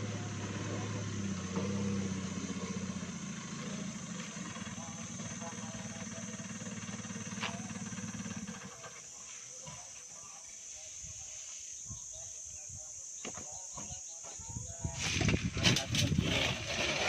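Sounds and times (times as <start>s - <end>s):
vehicle engine idling: 0.0s - 10.5s
insects droning: 0.0s - 17.0s.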